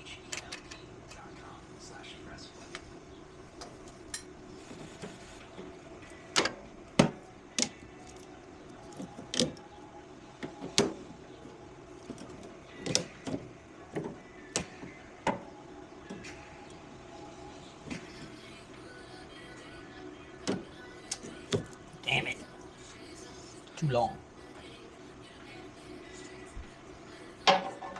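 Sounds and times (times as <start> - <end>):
steady low hum: 0.0 - 27.9
objects knocking and clanking: 27.4 - 27.9.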